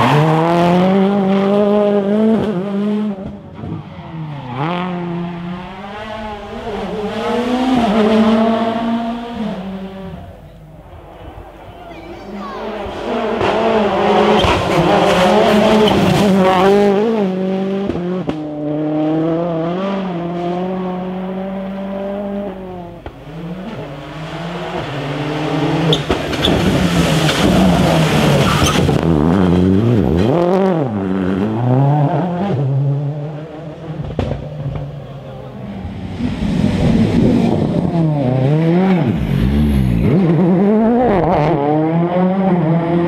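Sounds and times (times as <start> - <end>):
rally car engine revving: 0.0 - 11.8, 12.6 - 43.0
tyre and road noise: 0.0 - 43.0
tyre squeal: 25.9 - 26.7, 27.6 - 28.9.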